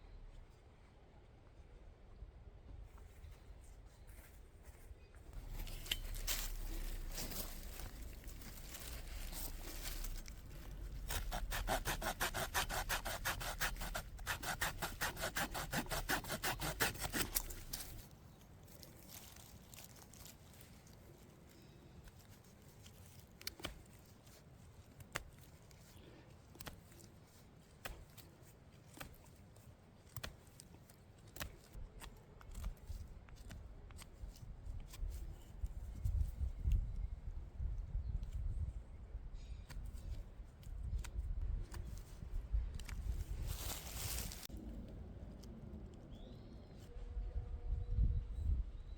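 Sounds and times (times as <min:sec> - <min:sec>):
hand saw cutting wood: 0:10.9 - 0:18.0.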